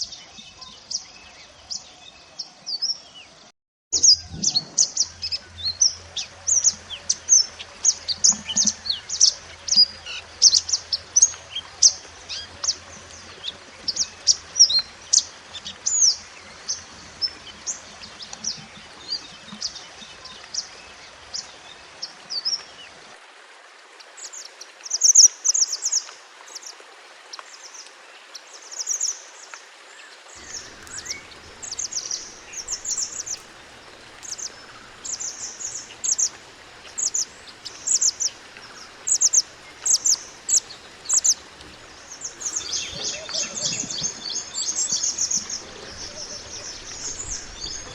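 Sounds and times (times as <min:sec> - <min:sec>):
bird chattering bursts: 0:30.4 - 0:47.6
songbird chirping and trilling: 0:30.4 - 0:47.9.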